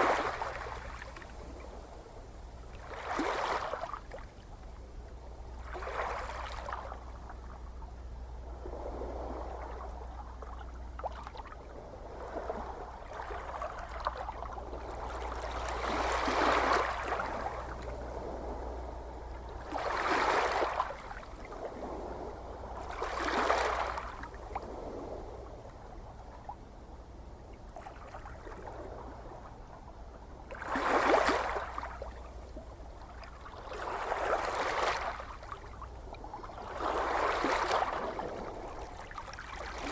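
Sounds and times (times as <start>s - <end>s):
ocean waves washing in: 0.0s - 4.6s, 5.4s - 26.6s, 27.7s - 39.9s
steady low hum: 0.0s - 30.7s.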